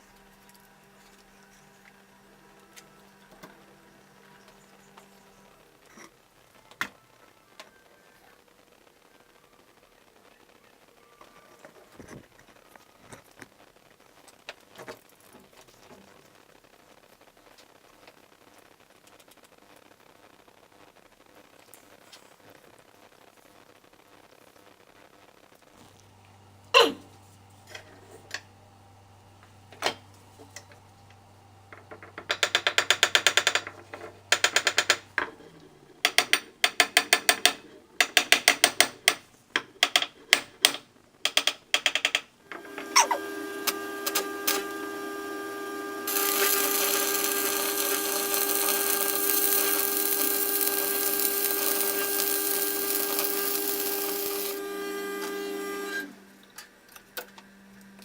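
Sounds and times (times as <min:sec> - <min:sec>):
rapid clicking: 0:32.2 - 0:35.2, 0:36.1 - 0:42.4
machine tool motor hum: 0:39.8 - 0:56.2
loud cutting noise: 0:42.5 - 0:56.2.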